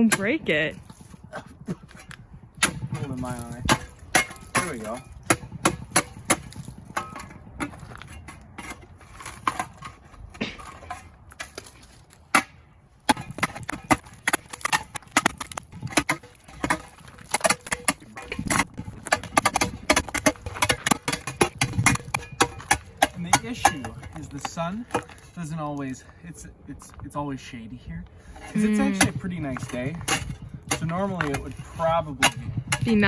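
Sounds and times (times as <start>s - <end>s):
ice being struck and chipped: 12.3s - 25.2s.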